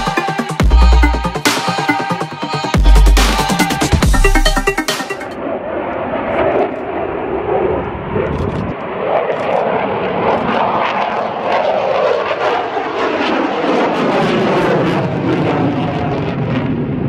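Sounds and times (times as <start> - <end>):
aircraft engine: 5.4 - 17.0.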